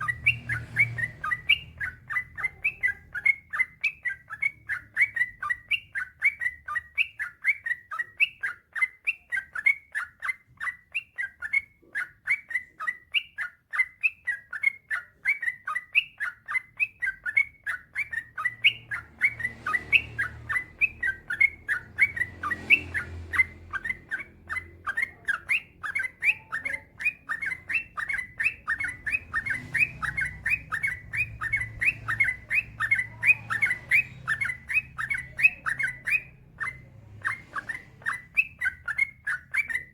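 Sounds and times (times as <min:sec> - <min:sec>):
bird chirping: 0:00.0 - 0:39.9
faint low rumble: 0:18.3 - 0:39.4.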